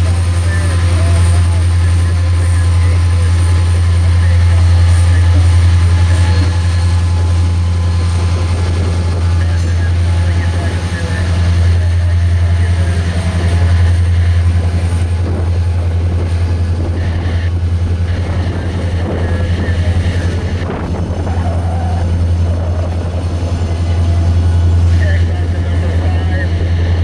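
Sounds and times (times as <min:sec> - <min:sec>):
freight cars rumbling on rails: 0:00.0 - 0:27.0
locomotive engine drone: 0:00.0 - 0:27.0
faint high wheel squeals: 0:21.3 - 0:22.9.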